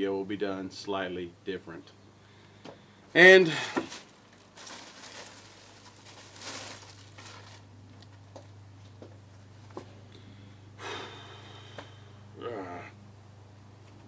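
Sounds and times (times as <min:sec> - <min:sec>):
steady low hum: 0:00.0 - 0:14.0
soft rustling: 0:03.8 - 0:09.9.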